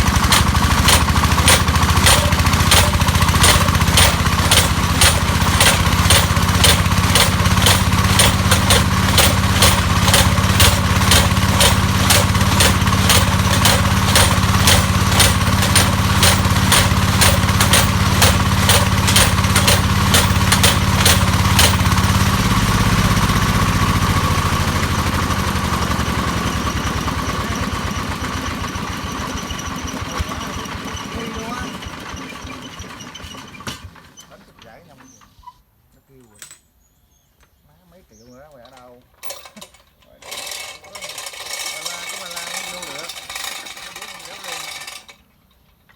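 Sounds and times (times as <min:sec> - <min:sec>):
drilling rig hammer striking: 0:00.0 - 0:28.1
drilling rig engine running: 0:00.0 - 0:33.4.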